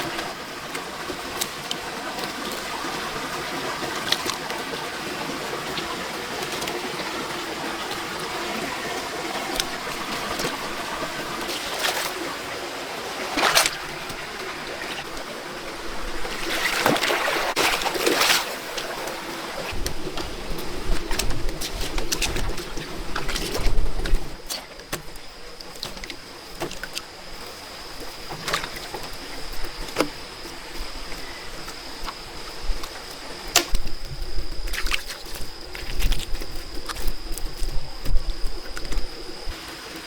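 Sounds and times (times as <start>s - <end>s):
sharp water splashes: 13.2s - 15.3s.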